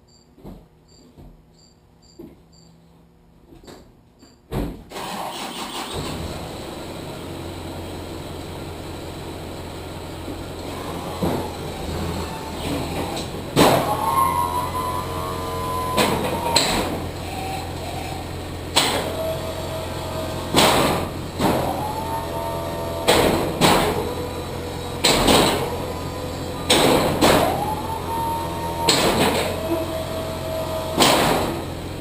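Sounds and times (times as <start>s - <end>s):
hydraulic pump whine: 5.0s - 32.0s
hydraulic system clunk: 10.3s - 31.9s.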